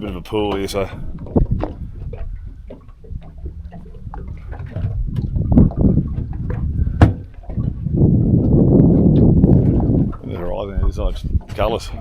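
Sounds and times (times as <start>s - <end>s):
water slapping against boat hull: 0.0s - 12.0s
wind buffeting microphone: 0.0s - 12.0s
knocks on boat: 4.6s - 7.7s.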